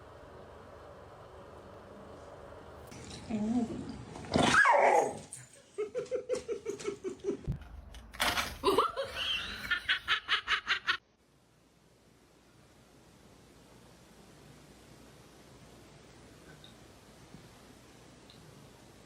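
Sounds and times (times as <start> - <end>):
person laughing: 5.6 - 7.5, 8.6 - 11.0.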